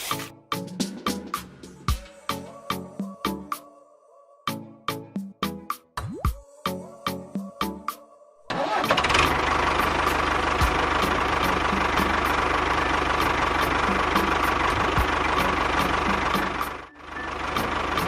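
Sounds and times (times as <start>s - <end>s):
engine idling: 8.5s - 18.0s.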